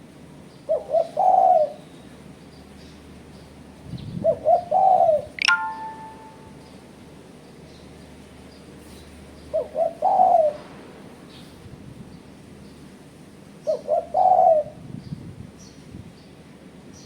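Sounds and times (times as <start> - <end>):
dove cooing: 0.7 - 1.8, 4.1 - 6.5, 9.5 - 10.6, 13.6 - 14.8
faint small bird chirps: 5.4 - 6.5.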